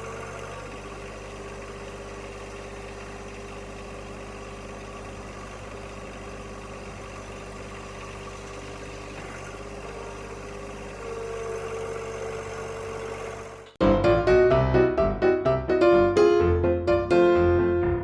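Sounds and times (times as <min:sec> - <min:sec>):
engine idling: 0:00.0 - 0:13.8.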